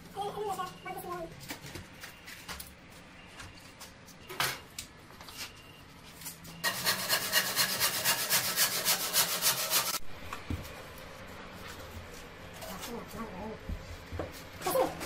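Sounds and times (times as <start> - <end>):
hand tool scraping material: 6.6 - 10.0.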